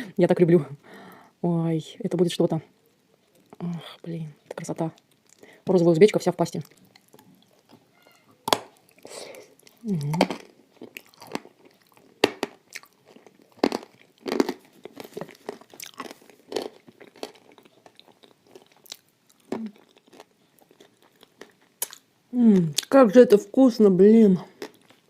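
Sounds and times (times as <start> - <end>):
wet chewing: 4.4 - 5.6, 6.5 - 23.0
crunching clay between teeth: 8.4 - 23.0.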